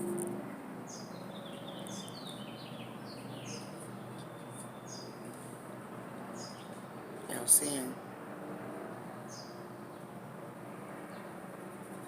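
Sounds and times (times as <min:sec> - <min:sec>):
songbird chirping: 0:00.9 - 0:05.2, 0:06.3 - 0:07.8.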